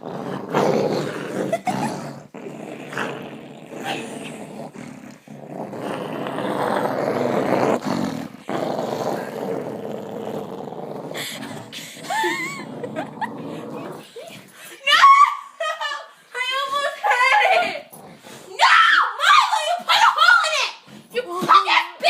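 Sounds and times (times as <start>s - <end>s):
dog growling: 0.0s - 14.5s.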